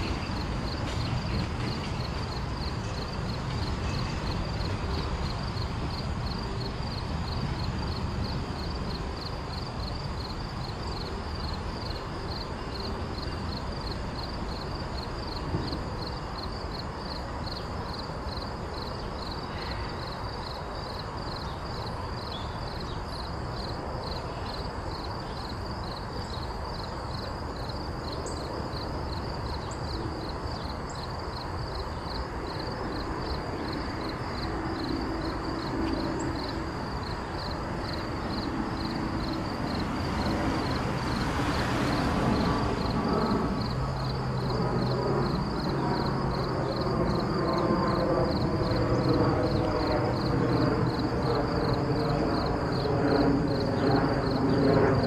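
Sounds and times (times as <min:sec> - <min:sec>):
freight train rumbling: 0:00.0 - 0:20.4
insects chirping: 0:00.0 - 0:55.0.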